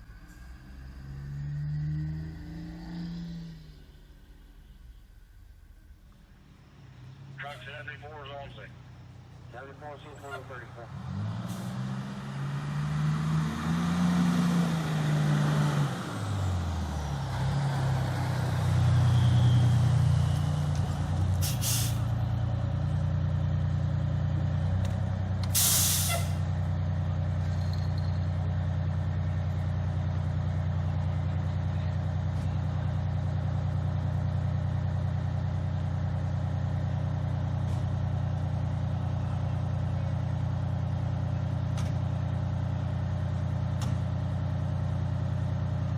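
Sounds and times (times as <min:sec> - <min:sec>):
fire truck diesel engine: 0:00.0 - 0:45.9
air brakes hissing: 0:21.4 - 0:22.1, 0:25.5 - 0:26.4.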